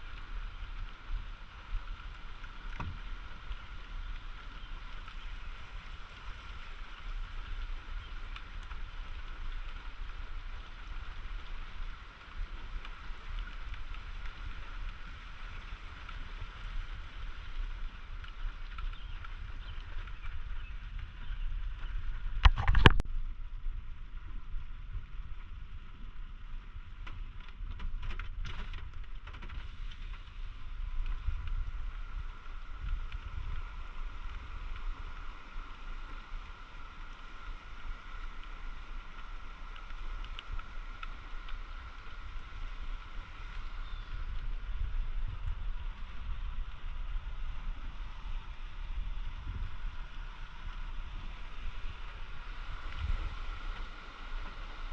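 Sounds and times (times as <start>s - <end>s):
wind rumble on microphone: 0.0s - 54.9s
faint clicks: 11.3s - 23.1s, 27.0s - 47.2s.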